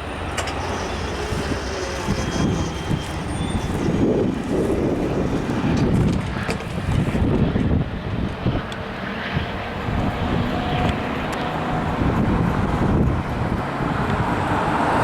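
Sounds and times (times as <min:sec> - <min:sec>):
train passing rumble: 0:00.0 - 0:08.8
wind gusting on microphone: 0:00.0 - 0:15.0.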